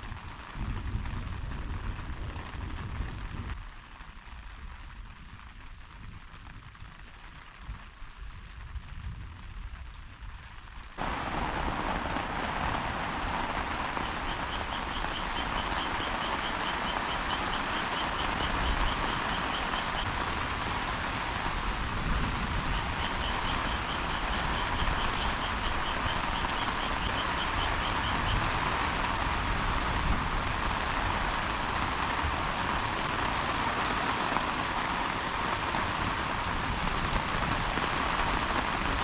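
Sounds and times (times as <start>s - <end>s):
heavy rain pouring: 0.0s - 39.0s.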